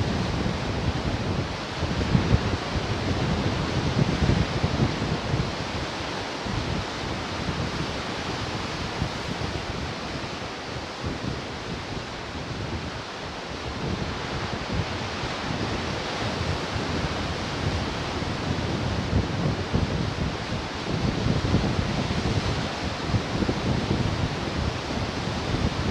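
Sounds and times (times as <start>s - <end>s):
wind rumbling on microphone: 0.0s - 25.9s
ocean surf washing ashore: 0.1s - 20.9s.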